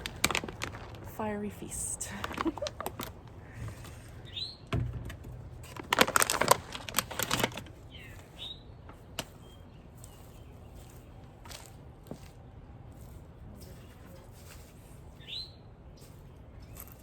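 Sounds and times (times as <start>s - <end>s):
packages clicking and rustling: 0.0s - 12.4s
downward-sliding bird chirps: 15.2s - 15.6s.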